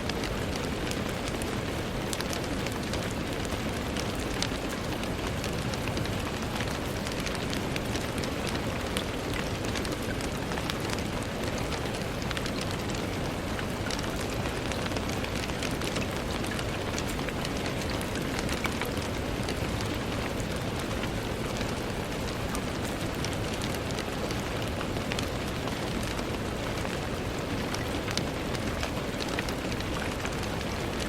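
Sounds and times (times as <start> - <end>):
rain on a window: 0.0 - 31.0.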